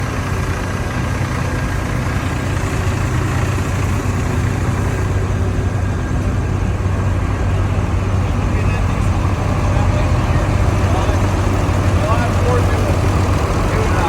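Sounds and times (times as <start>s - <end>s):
tractor engines idling: 0.0s - 14.0s.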